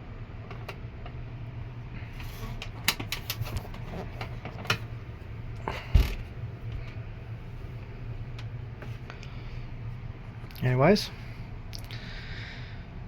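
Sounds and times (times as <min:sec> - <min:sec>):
low hum: 0:00.0 - 0:13.0
plastic fan cabinet clicks and knocks: 0:02.5 - 0:04.9.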